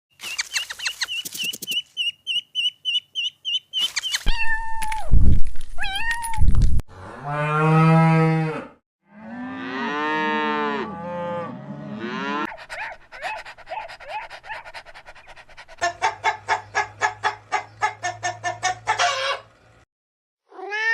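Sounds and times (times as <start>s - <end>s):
rapid high-pitched chirping: 0.2s - 4.3s
cow mooing: 6.9s - 12.5s.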